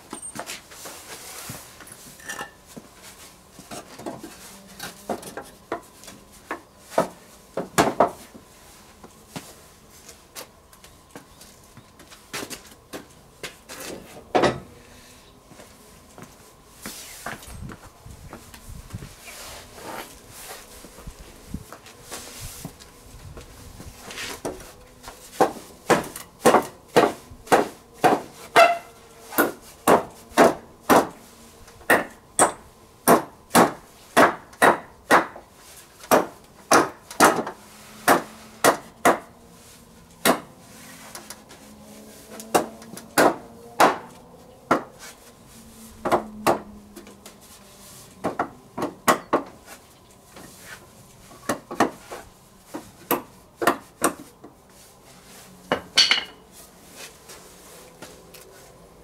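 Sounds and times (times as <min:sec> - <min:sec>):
hammer striking wood: 0:29.4 - 0:31.1, 0:31.9 - 0:35.4, 0:36.1 - 0:39.3, 0:42.5 - 0:44.1, 0:48.2 - 0:49.5.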